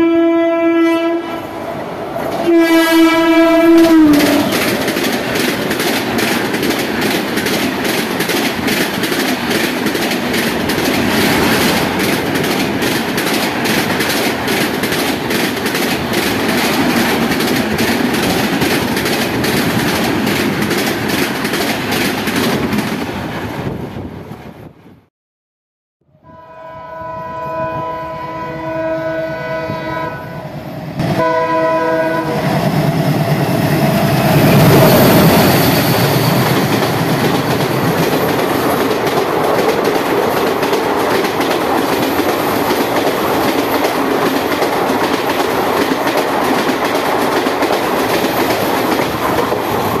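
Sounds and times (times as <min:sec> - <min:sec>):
locomotive horn blasts: 0:00.0 - 0:01.6, 0:02.4 - 0:04.5, 0:26.2 - 0:32.5
train passing by: 0:00.0 - 0:25.0, 0:26.3 - 0:50.0
wheels clattering over rails: 0:04.1 - 0:23.2.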